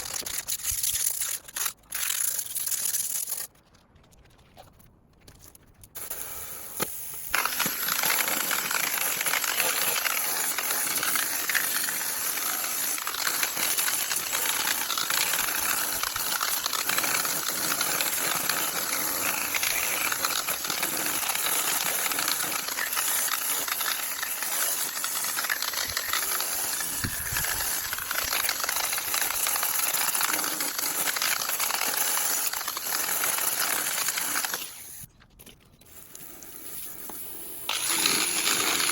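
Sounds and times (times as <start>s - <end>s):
scratchy hissing of metal cleaning: 35.9s - 38.9s.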